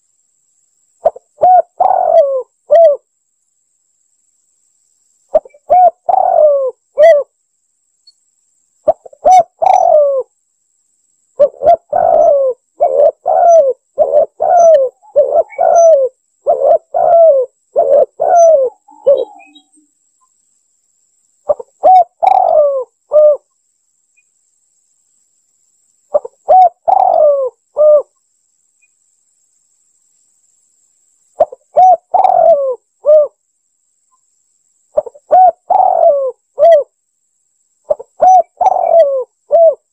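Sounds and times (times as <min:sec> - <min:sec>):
dove cooing: 0:01.0 - 0:03.0, 0:05.3 - 0:07.3, 0:08.8 - 0:10.3, 0:11.4 - 0:19.7, 0:21.5 - 0:23.5, 0:26.1 - 0:28.1, 0:31.4 - 0:33.4, 0:35.0 - 0:36.9, 0:37.9 - 0:39.9.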